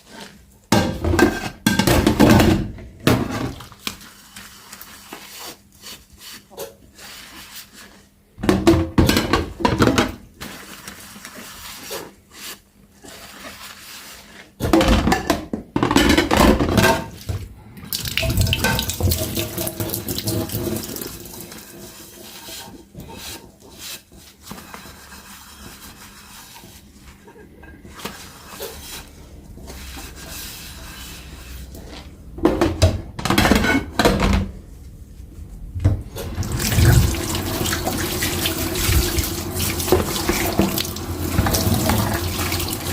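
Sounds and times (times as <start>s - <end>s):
tap water running into sink: 17.9s - 21.6s, 36.2s - 42.9s.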